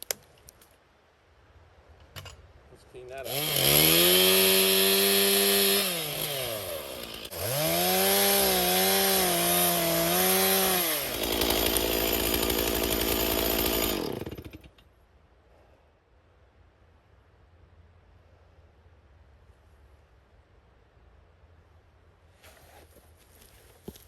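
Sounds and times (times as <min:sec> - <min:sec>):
chainsaw revving and cutting: 0:03.2 - 0:14.7.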